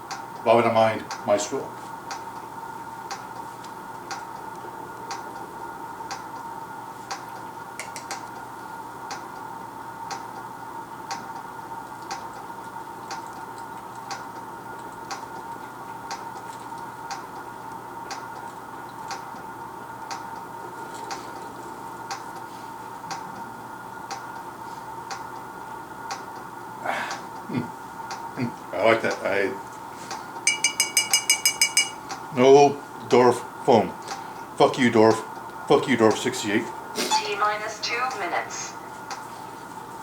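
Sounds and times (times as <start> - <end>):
timer ticking: 0.0 - 6.5, 9.1 - 9.4, 10.0 - 10.4, 11.0 - 16.4, 17.0 - 20.5, 23.1 - 23.5, 24.1 - 25.5, 26.1 - 26.5, 27.1 - 29.4, 30.1 - 33.3
electrical hum: 0.0 - 40.0.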